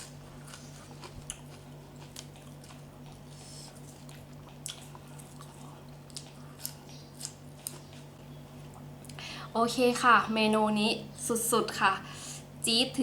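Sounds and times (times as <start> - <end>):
steady low hum: 0.0 - 13.0
wet chewing and lip smacks: 0.1 - 9.2.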